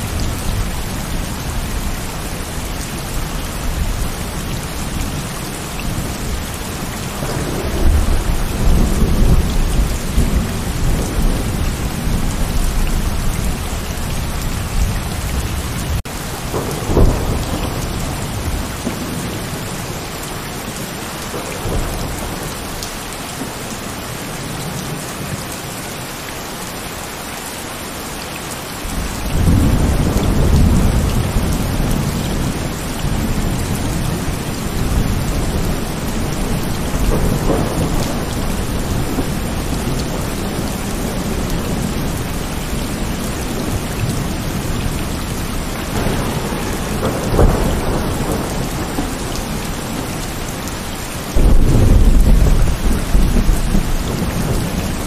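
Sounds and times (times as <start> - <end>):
thunder rumbling: 0.0 - 20.1, 28.9 - 55.0
heavy rain falling: 0.0 - 55.0.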